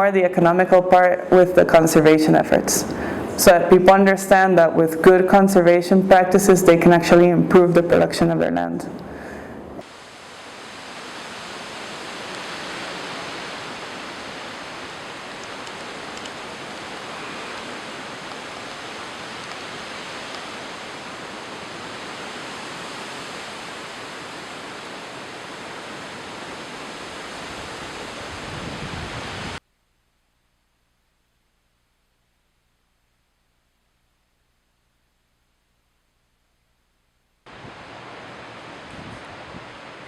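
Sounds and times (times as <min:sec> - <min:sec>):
flowing water rushing: 0:09.8 - 0:29.6, 0:37.5 - 0:40.0.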